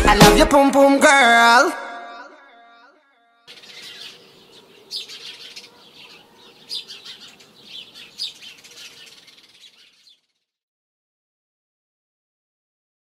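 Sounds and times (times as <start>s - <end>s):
birds chirping and twittering: 3.5s - 10.6s.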